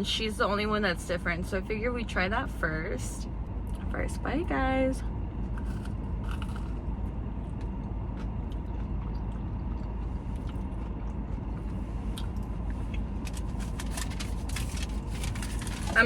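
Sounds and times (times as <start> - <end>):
low background hum: 0.0 - 16.0
person biting and chewing: 5.4 - 15.8
mouth and crust clicks: 5.5 - 6.8.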